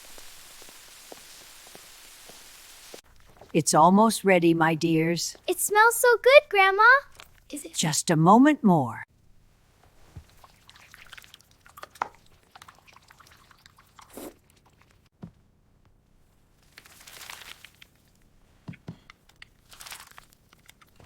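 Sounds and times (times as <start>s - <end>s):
food crunching and chewing: 7.1s - 7.5s, 10.3s - 15.1s, 19.1s - 21.0s.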